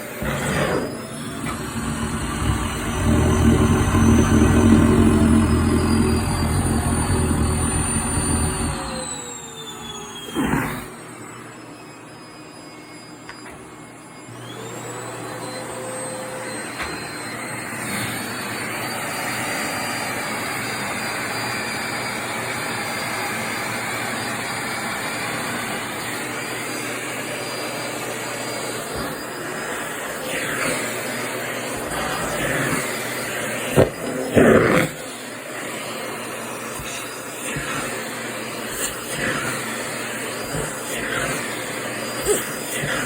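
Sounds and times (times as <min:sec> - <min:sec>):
vacuum cleaner motor whine: 0:00.0 - 0:43.0.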